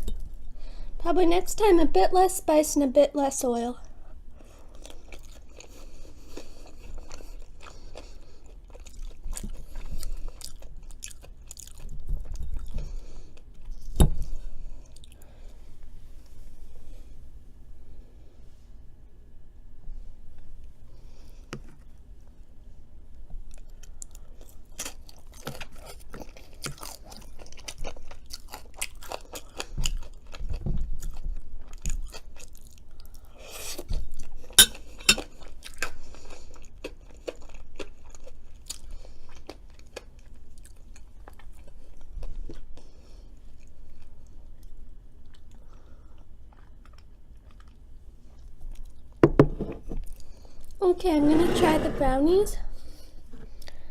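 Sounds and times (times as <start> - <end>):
chewing crunchy fries: 3.8 - 15.5, 23.0 - 49.2.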